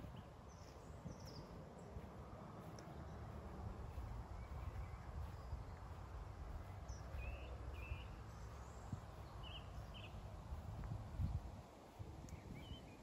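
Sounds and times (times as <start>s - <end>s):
steady low rumble: 0.0s - 13.0s
bird chirps: 2.8s - 6.0s, 6.6s - 10.2s, 12.3s - 13.0s.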